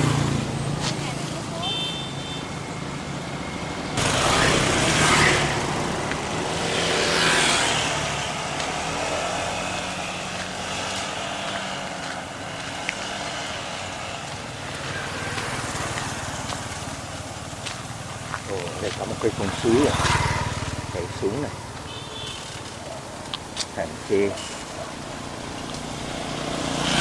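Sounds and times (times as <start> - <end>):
vehicle engine and road noise: 0.0 - 27.0
rushing noise: 2.4 - 10.2.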